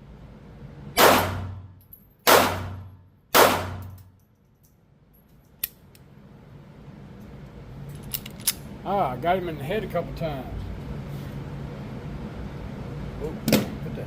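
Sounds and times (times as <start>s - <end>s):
handgun shots echoing indoors: 1.0s - 4.3s.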